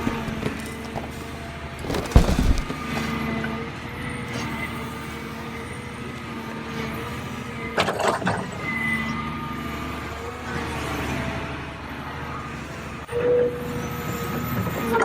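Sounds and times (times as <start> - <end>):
clatter of knocks: 1.8 - 3.2.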